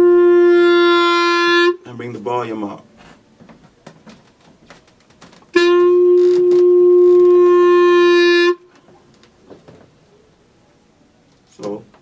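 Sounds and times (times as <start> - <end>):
clarinet long held note: 0.0 - 1.8, 5.5 - 8.7.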